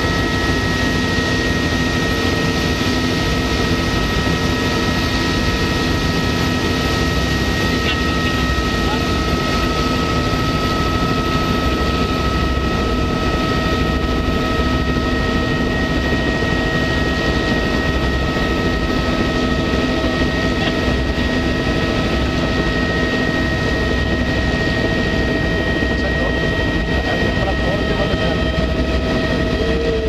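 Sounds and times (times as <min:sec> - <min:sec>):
helicopter drone: 0:00.0 - 0:30.0
high-pitched whines: 0:24.0 - 0:30.0.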